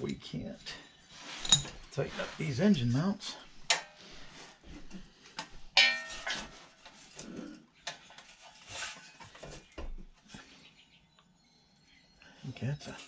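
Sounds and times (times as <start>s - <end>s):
metal knocking and scraping: 1.2s - 2.4s, 3.7s - 4.1s, 5.8s - 10.0s
sharp metallic clang: 5.8s - 6.6s.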